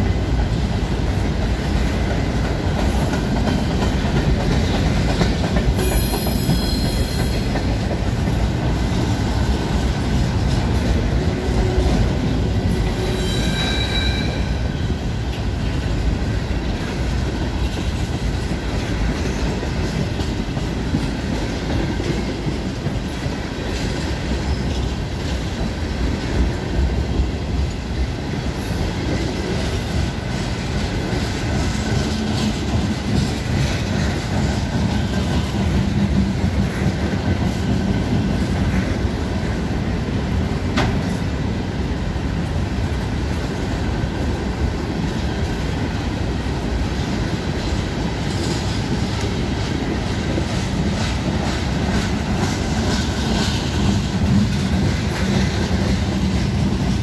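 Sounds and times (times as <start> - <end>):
steel wheels rolling on rail: 0.0 - 57.0
high wheel squeal: 5.8 - 7.5, 13.0 - 14.6.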